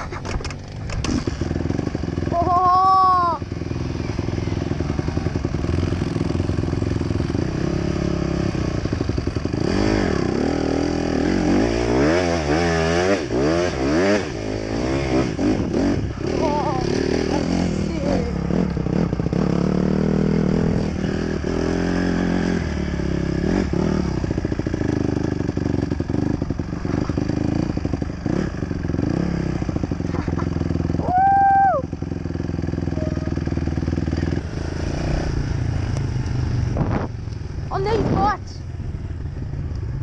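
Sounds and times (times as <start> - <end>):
dirt bike engine revving: 0.0 - 39.4
high-pitched tone: 32.8 - 34.0.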